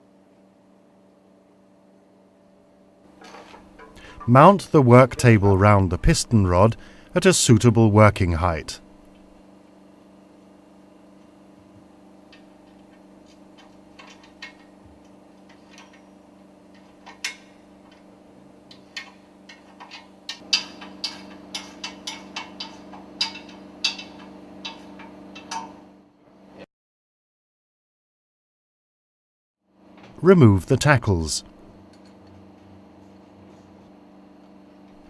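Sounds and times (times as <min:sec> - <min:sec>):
machinery hum: 0:02.6 - 0:26.6
clicks and knocks of hand tools: 0:12.3 - 0:16.1, 0:16.7 - 0:18.1, 0:18.7 - 0:25.8.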